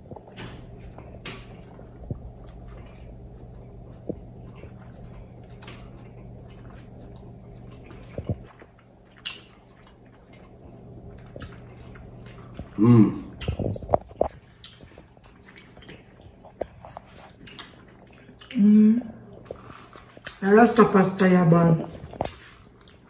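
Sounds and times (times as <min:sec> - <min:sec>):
people chewing and lip smacking: 0:00.0 - 0:20.6, 0:21.8 - 0:23.0
faint low hum: 0:00.0 - 0:23.0.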